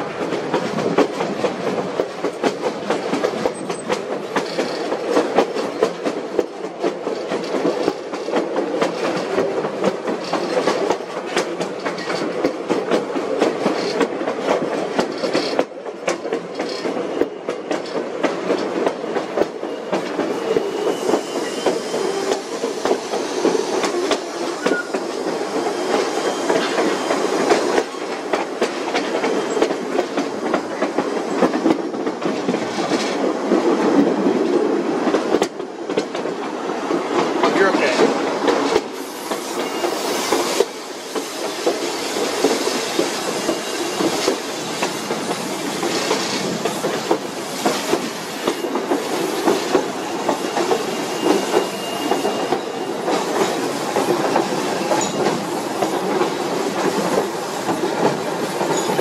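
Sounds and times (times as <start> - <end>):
train wheels clattering over rail joints: 0.0 - 59.0
faint wheel squeal: 19.6 - 22.5, 23.4 - 27.5, 39.0 - 40.7, 50.0 - 53.0.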